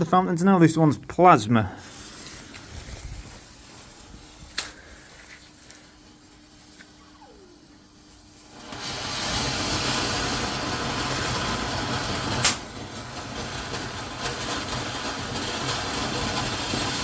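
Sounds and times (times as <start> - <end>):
firework fountain hissing: 1.7 - 17.0
sharp firework crack: 1.8 - 5.1, 8.0 - 17.0.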